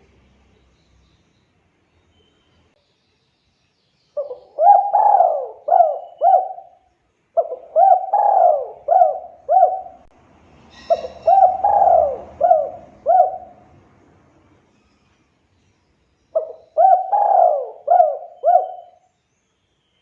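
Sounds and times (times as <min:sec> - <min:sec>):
dove cooing: 0:04.2 - 0:06.8, 0:07.4 - 0:10.1, 0:10.8 - 0:13.7, 0:16.4 - 0:19.0.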